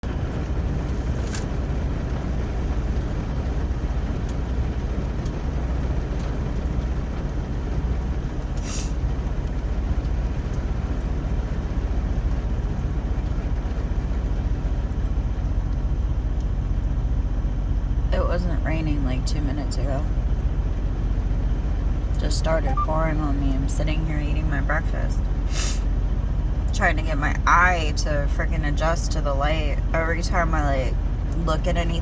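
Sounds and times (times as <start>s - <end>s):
rain pouring: 0.0s - 18.0s.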